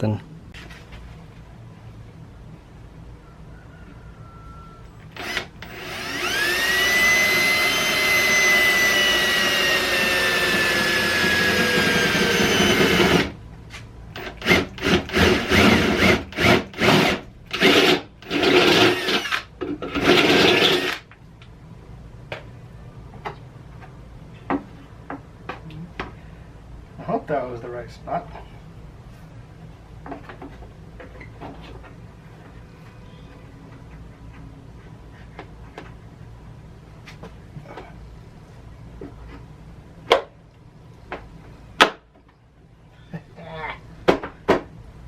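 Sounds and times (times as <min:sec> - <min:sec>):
drill trigger pulses: 0:05.1 - 0:13.4, 0:14.2 - 0:21.0
power drill motor whining: 0:05.1 - 0:13.4, 0:14.2 - 0:21.0.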